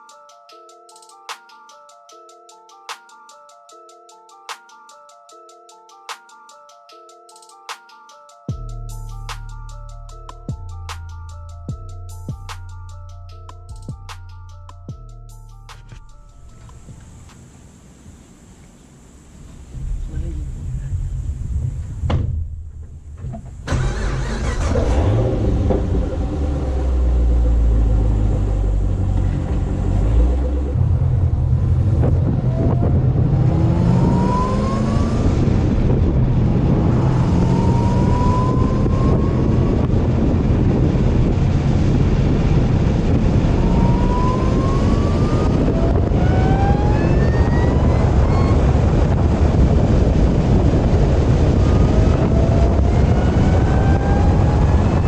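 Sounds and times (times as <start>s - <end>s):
car engine accelerating: 23.6s - 55.0s
supercharger whine: 23.6s - 55.0s.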